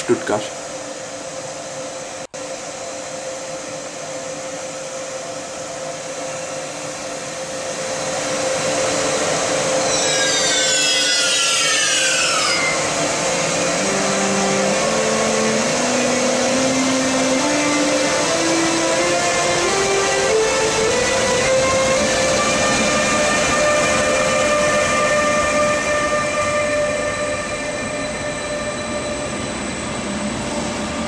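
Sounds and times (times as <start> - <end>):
electric locomotive hum: 0.0 - 31.0
high whistling tones sweeping down: 7.6 - 31.0.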